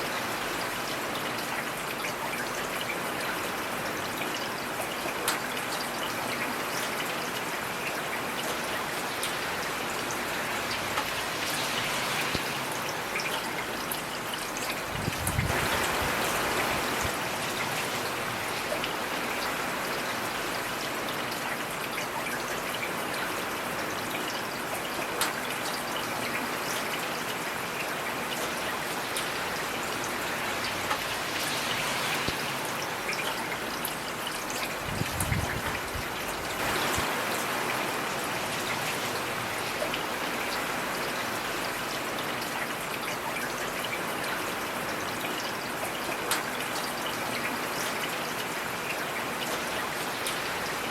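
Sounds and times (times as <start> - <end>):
heavy rain falling: 0.0 - 50.9.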